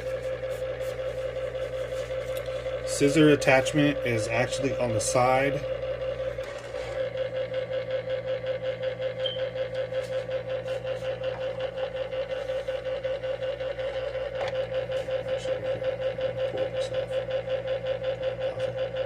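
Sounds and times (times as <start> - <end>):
knife sharpener motor humming: 0.0 - 19.0.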